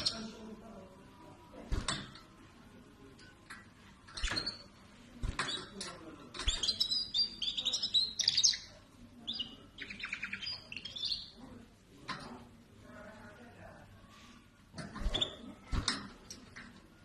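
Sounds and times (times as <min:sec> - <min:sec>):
songbird chirping and trilling: 0:00.0 - 0:00.5, 0:06.4 - 0:11.4.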